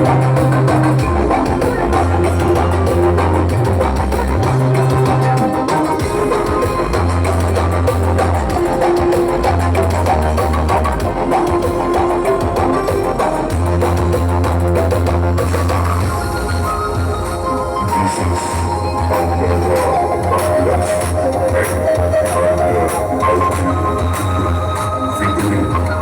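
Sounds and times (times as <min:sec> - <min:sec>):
heavy sustained bass notes: 0:00.0 - 0:17.1
loud music from sound system: 0:00.0 - 0:26.0.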